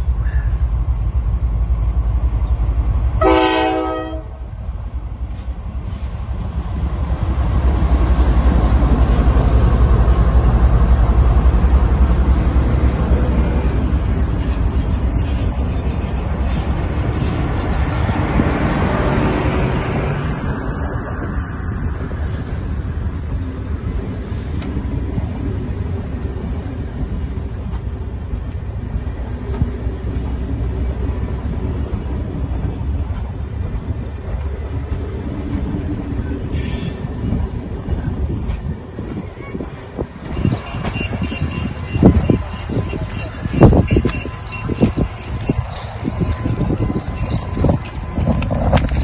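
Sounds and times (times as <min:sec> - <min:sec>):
passenger train rumbling past: 0:00.0 - 0:49.0
diesel locomotive horn blast: 0:03.2 - 0:04.5.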